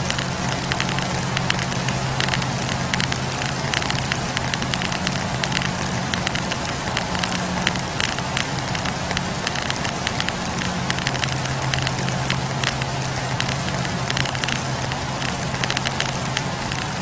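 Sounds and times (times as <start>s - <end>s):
campfire crackling: 0.0s - 17.0s
low hum: 0.0s - 17.0s.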